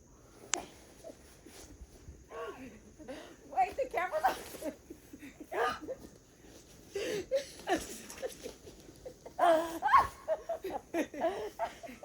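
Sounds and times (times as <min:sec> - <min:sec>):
people laughing and giggling: 0:04.2 - 0:06.2, 0:06.9 - 0:12.0.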